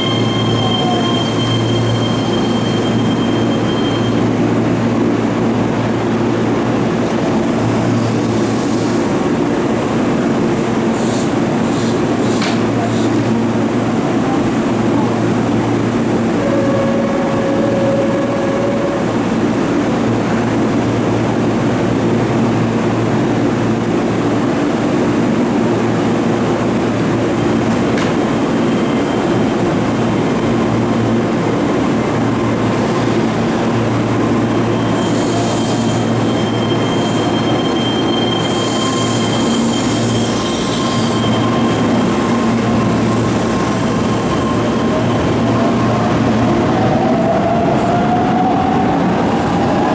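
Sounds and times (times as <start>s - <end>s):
wheel squeal: 0.0s - 4.2s, 34.3s - 45.9s
electric train rumbling: 0.0s - 49.9s.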